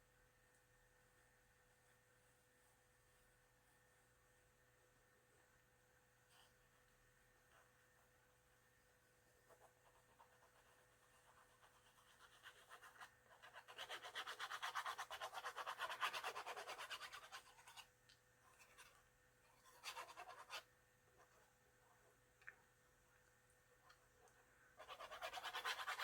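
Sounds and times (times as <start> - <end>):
fast scraping on a book: 11.3 - 17.9, 19.6 - 20.7, 24.8 - 26.0.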